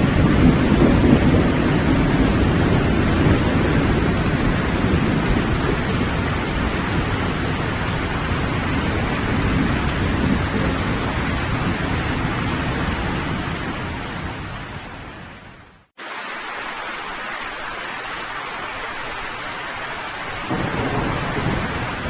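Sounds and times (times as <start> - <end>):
distant thunder rumbling: 0.0 - 15.2, 19.9 - 22.0
steady rain: 0.0 - 22.0.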